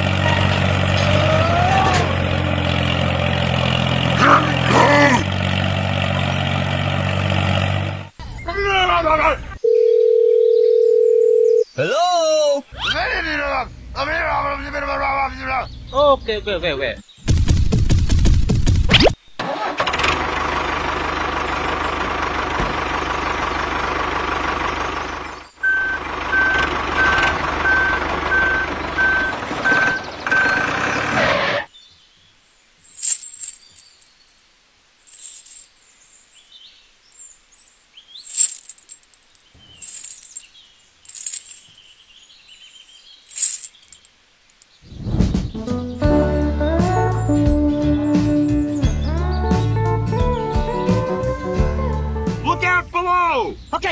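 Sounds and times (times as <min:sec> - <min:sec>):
heavy vehicle engine running: 0:00.0 - 0:08.4, 0:18.5 - 0:31.6
reversing beeps: 0:25.6 - 0:30.7.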